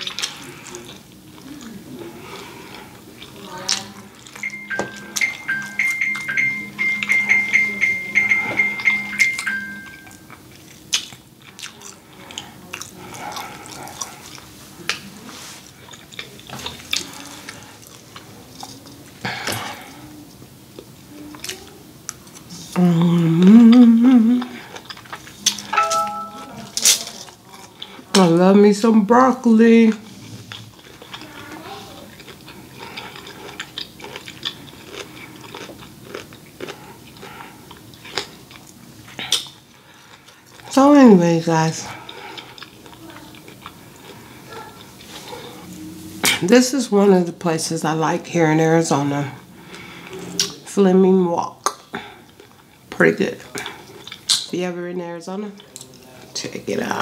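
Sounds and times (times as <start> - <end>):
person chewing broccoli: 0.0 - 7.1, 8.6 - 19.9, 20.6 - 26.1, 29.9 - 40.8, 41.8 - 45.8, 51.6 - 54.4.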